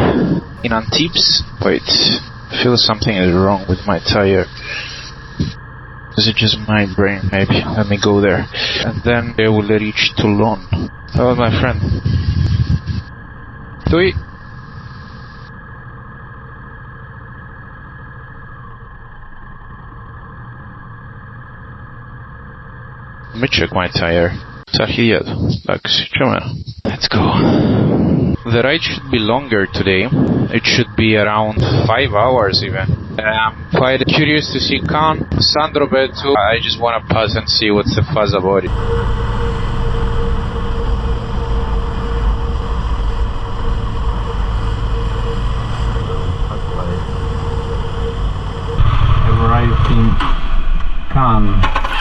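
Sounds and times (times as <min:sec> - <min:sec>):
riding noise rush: 0:00.0 - 0:16.2, 0:27.1 - 0:52.0
steady hum: 0:00.0 - 0:24.7, 0:27.1 - 0:52.0
motorcycle engine running: 0:38.7 - 0:50.0.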